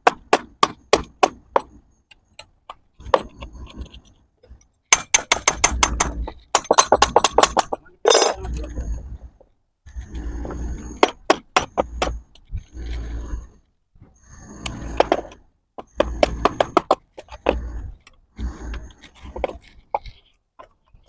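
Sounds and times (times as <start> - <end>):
metal clinks and knocks: 0.6 - 4.2, 4.9 - 8.7.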